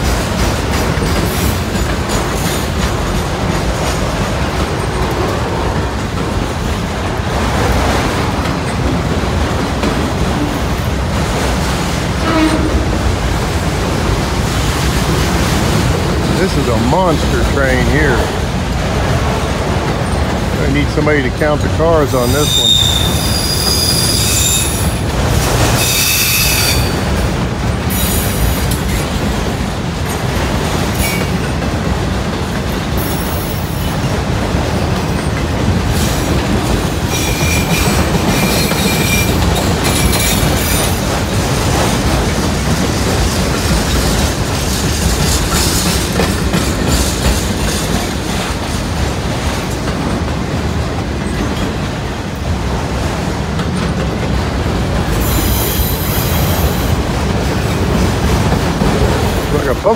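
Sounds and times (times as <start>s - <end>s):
train wheels rumbling on rails: 0.0s - 59.9s
high-pitched wheel squeal: 22.4s - 24.9s, 25.8s - 27.0s.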